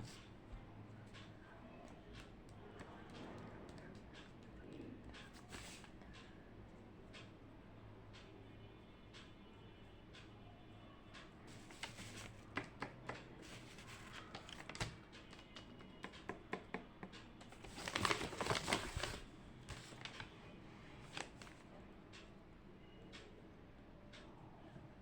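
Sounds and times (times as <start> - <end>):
paper rustling: 11.5 - 12.7, 13.4 - 15.7, 17.4 - 20.4, 21.0 - 21.6
small desk clicks and taps: 11.6 - 17.6.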